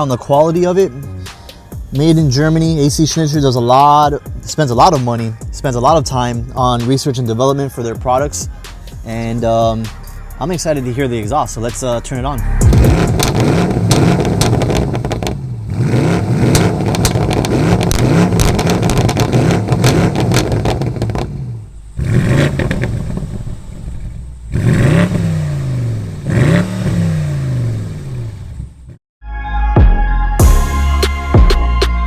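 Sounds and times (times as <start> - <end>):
exhaust crackles: 0.0 - 29.0
car engine revving: 8.0 - 29.0.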